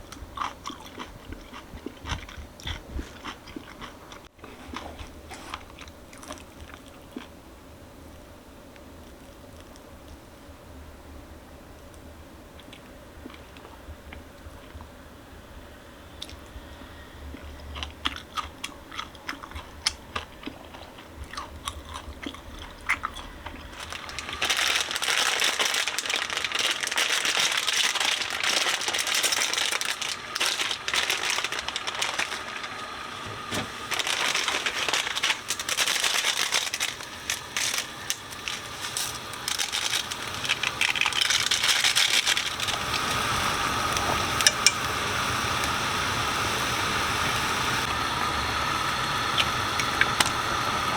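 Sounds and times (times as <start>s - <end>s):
chewing with small clicks: 0.1s - 7.4s, 17.3s - 24.0s
plastic packaging crinkling: 22.6s - 44.2s.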